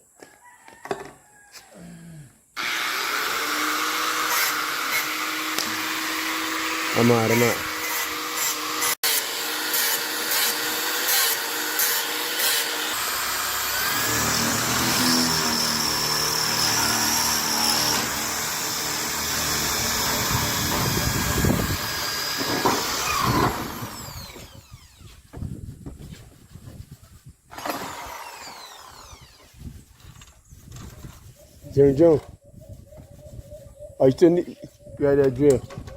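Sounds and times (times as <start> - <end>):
power drill running: 2.6 - 25.1, 27.5 - 29.5.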